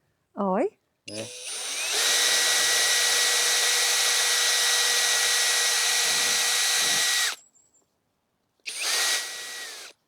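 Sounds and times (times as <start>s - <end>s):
electric drill boring gourd shell: 1.1s - 7.4s, 8.7s - 10.0s.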